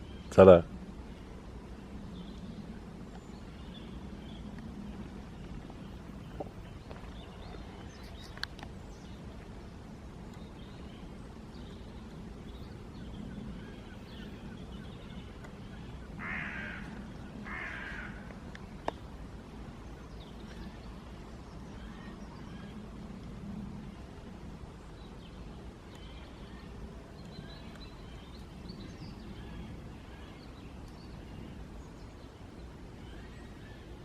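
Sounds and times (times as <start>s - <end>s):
small birds chirping: 0.0s - 22.8s, 24.7s - 34.0s
steady low rumble: 0.0s - 34.0s
crow cawing: 16.2s - 18.3s.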